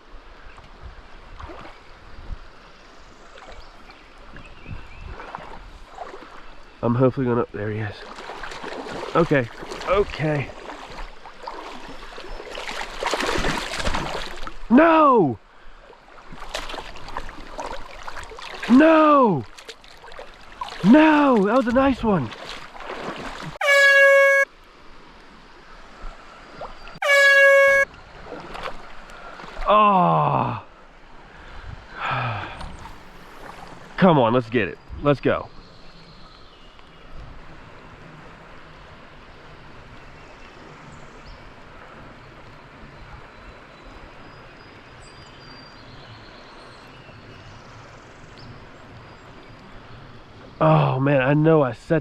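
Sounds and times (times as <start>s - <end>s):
faint creek ambience: 0.0s - 52.0s
running water: 16.1s - 24.4s, 27.0s - 27.8s
air horn blasts: 23.6s - 24.5s, 27.0s - 27.9s.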